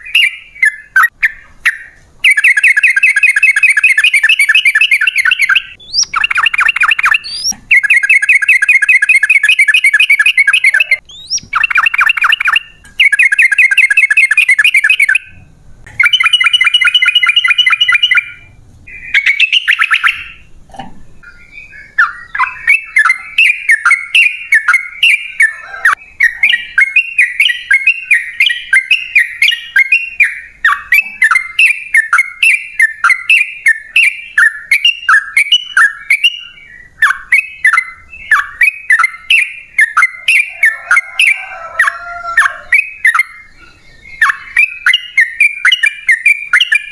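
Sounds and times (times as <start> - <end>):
bird singing rolling chatter: 0.0 - 46.9.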